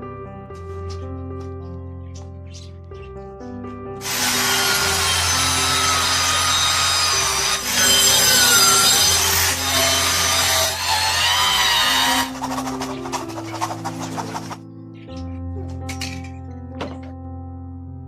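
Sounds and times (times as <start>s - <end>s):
low background music: 0.0s - 18.0s
power tool cutting: 4.0s - 12.8s.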